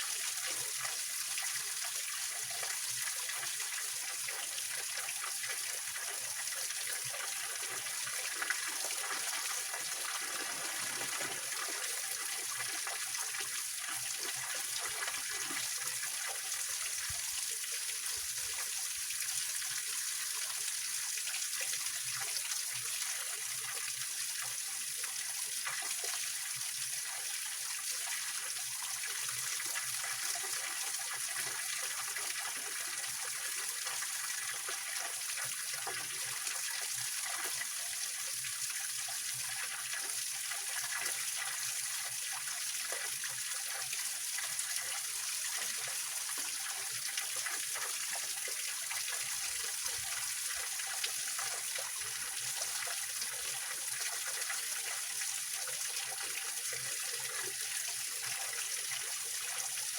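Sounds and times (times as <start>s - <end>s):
water splashing over stones: 8.5s - 12.0s.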